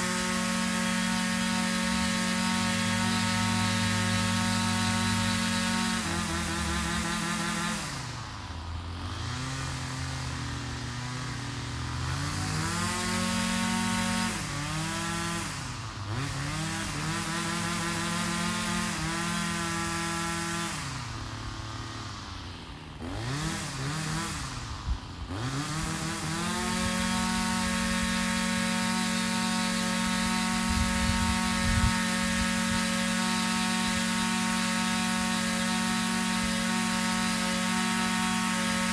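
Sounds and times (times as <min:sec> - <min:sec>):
two-stroke engine running: 0:00.0 - 0:38.9.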